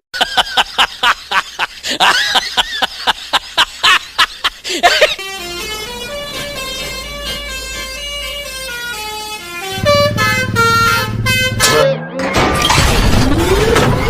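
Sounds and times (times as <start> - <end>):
bus horn playing a tune: 4.8 - 12.3.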